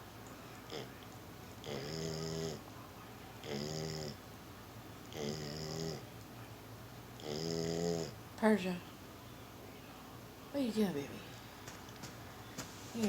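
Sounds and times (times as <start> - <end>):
dog snoring: 0.7 - 1.0, 1.6 - 2.6, 3.4 - 4.2, 5.1 - 6.1, 7.2 - 8.2.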